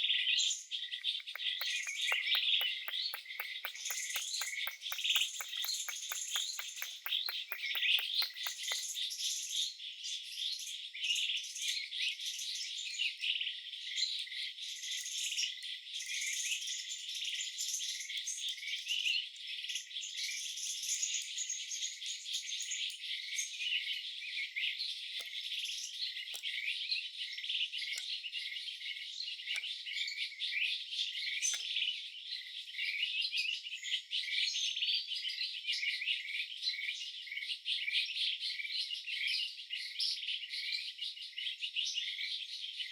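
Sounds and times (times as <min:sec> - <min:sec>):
birds chirping: 0:01.0 - 0:09.0
insects chirping: 0:01.2 - 0:08.9.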